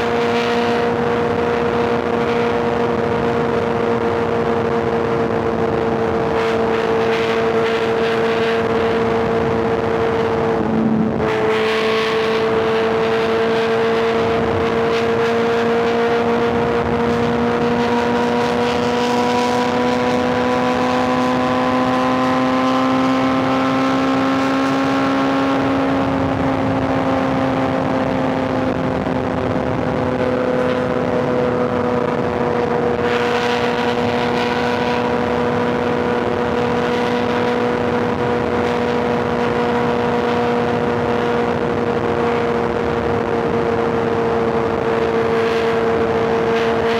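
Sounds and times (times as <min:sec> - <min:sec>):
motorcycle engine cruising: 0:00.0 - 0:46.9
wind and road noise: 0:00.0 - 0:46.9.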